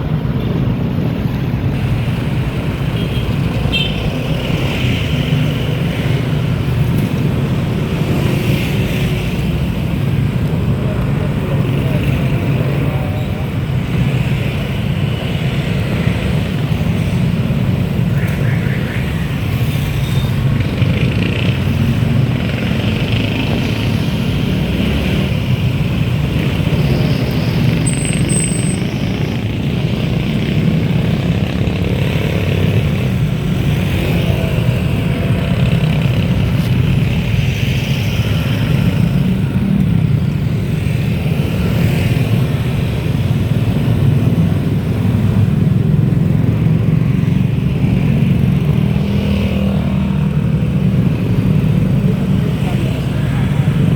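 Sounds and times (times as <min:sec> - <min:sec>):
bike riding rumble: 0:19.0 - 0:53.9.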